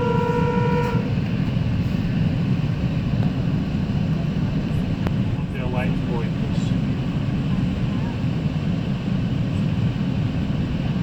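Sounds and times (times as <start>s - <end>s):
train horn: 0.0s - 1.2s
train rolling low rumble: 0.0s - 11.0s.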